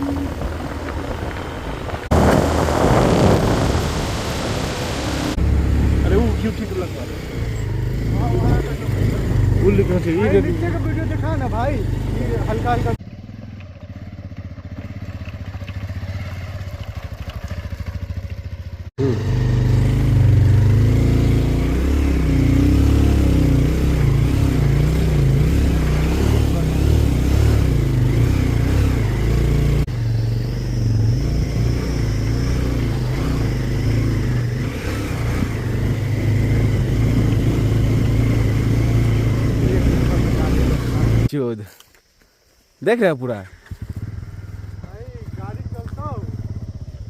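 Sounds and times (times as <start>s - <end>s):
motorcycle engine running: 0.0s - 41.3s, 43.4s - 47.0s.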